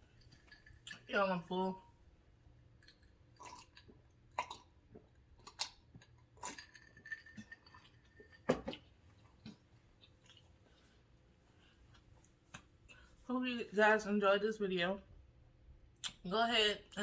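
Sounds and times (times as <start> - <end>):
person chewing: 2.8 - 11.0.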